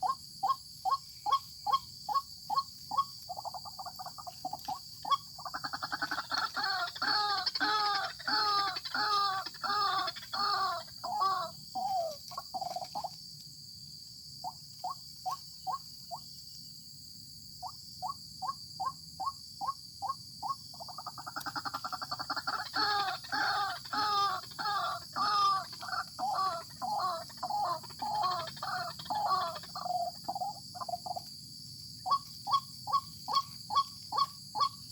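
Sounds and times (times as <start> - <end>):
waterhen harsh croaking calls: 0.0 - 12.6, 20.9 - 31.1.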